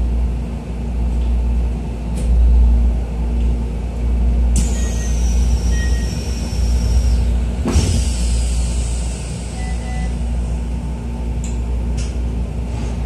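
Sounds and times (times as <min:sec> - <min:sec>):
train equipment hum: 0:00.0 - 0:13.0
hiss of released air: 0:07.7 - 0:09.9.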